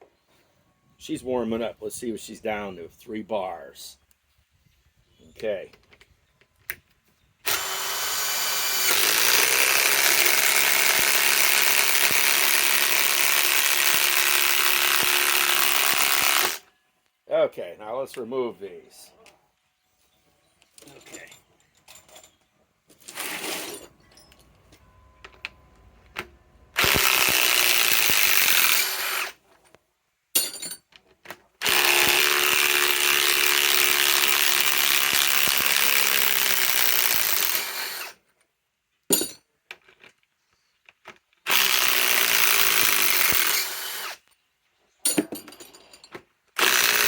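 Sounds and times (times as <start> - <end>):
impact wrench backing out screws: 26.1 - 29.3.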